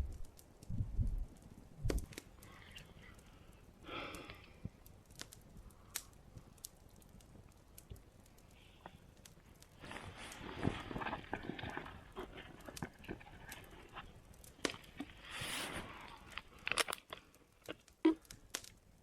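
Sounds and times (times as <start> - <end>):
sharp clicks and snaps: 0.0 - 10.5, 16.0 - 18.9
rustling and crunching handling: 5.0 - 18.8.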